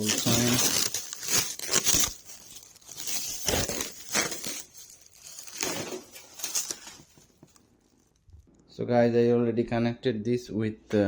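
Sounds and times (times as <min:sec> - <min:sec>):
packaging rustling and tearing: 0:00.0 - 0:08.4.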